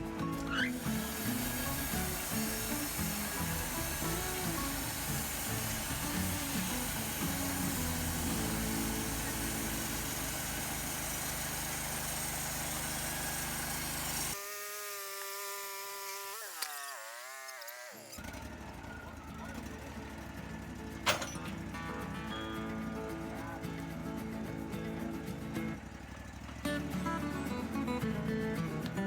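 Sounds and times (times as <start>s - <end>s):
background music: 0.0s - 10.8s, 19.6s - 25.8s, 26.6s - 29.0s
band sawmill running: 0.0s - 29.0s.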